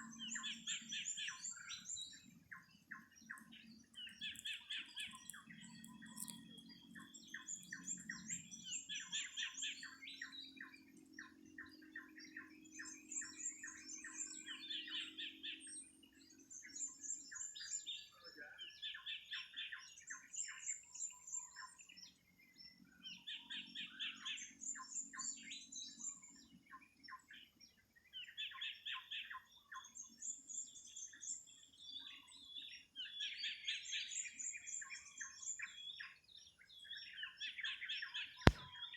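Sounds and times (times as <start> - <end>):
birds chirping: 0.1 - 15.4.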